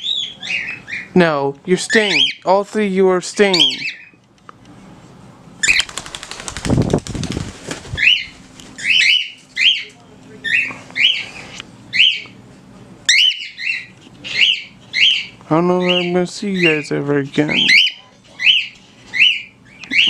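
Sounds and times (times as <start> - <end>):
bird flapping wings: 5.6 - 8.6.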